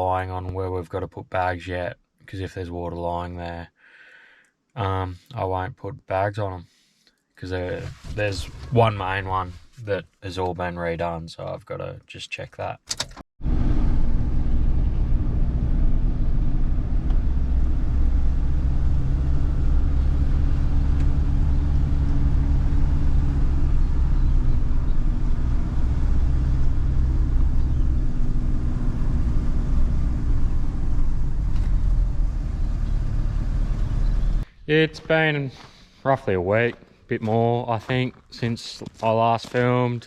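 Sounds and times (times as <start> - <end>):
vehicle engine running: 13.4 - 34.4.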